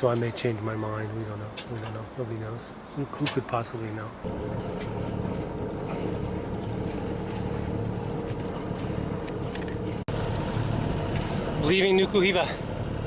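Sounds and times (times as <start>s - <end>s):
boat engine running: 4.2s - 13.0s.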